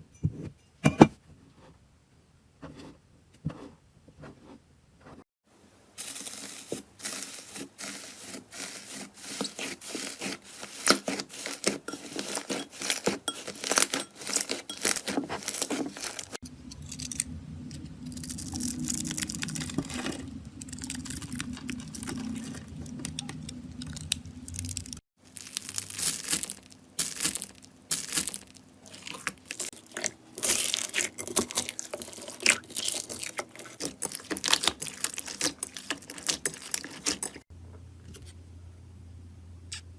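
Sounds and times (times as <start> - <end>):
steady low hum: 16.4 - 25.0.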